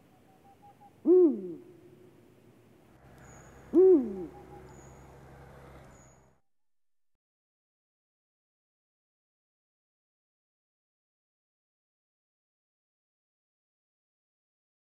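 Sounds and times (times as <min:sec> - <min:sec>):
bird calling: 0:00.0 - 0:02.1, 0:03.0 - 0:06.3.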